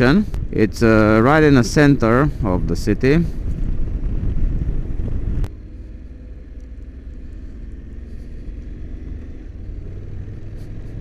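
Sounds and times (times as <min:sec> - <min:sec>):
wind noise on microphone: 0:00.0 - 0:05.6
motorcycle engine running: 0:00.0 - 0:11.0.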